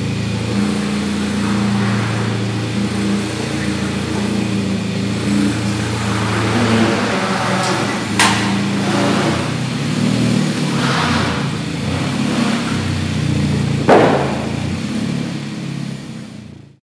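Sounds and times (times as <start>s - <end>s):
car engine idling: 0.0s - 16.8s
sharp bang: 13.9s - 14.9s.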